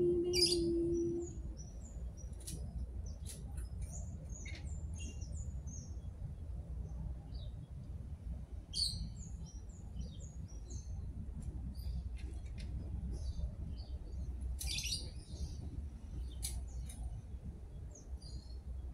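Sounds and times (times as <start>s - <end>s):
low background rumble: 0.0s - 18.9s
small birds chirping: 0.2s - 6.1s, 11.7s - 18.8s.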